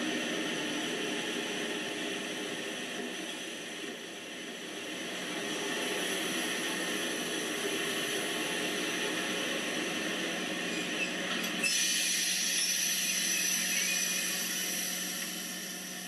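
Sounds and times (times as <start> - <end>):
model train motor whine: 11.6 - 16.0.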